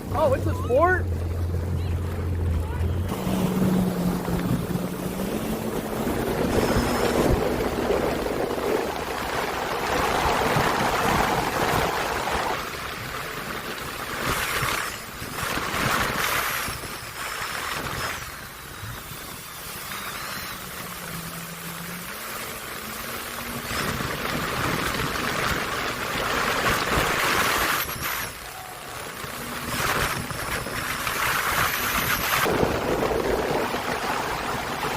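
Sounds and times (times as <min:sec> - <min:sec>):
faint low engine hum: 0:00.0 - 0:09.0
wind buffeting microphone: 0:00.0 - 0:19.8, 0:23.2 - 0:34.9
water rushing past boat: 0:00.0 - 0:34.9.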